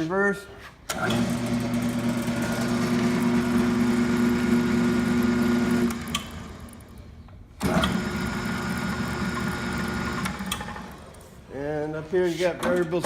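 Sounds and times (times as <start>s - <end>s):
electric motor humming: 1.1s - 6.9s.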